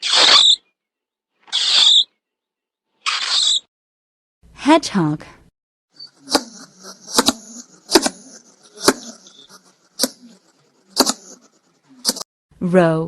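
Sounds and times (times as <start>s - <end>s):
hedgehog puffing: 6.0s - 12.2s.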